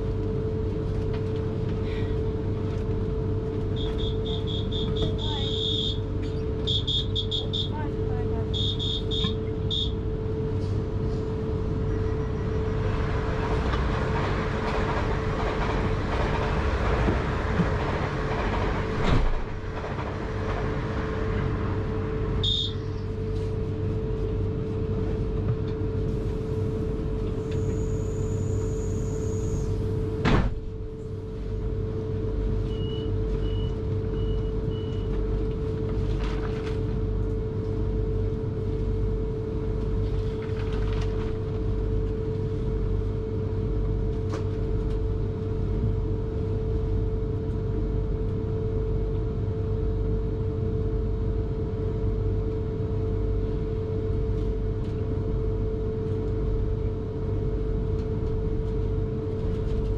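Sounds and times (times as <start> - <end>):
train carriage hum and rumble: 0.0 - 59.9
door warning beeps: 3.7 - 7.8, 8.5 - 10.0, 22.4 - 22.8.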